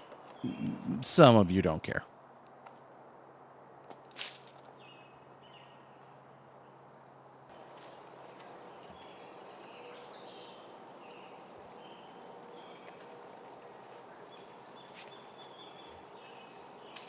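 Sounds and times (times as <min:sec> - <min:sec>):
faint outdoor background noise: 0:00.0 - 0:17.0
birds chirping and singing: 0:00.4 - 0:01.0, 0:07.9 - 0:13.1, 0:13.8 - 0:17.0.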